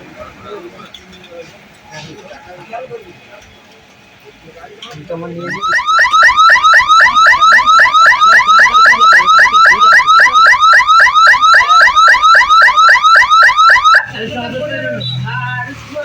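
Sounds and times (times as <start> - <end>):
electronic warning hooter chirping: 5.4 - 14.1.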